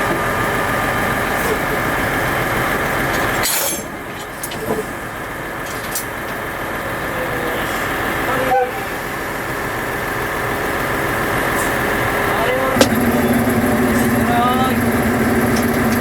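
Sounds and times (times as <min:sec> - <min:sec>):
train rumbling: 0:06.8 - 0:16.0.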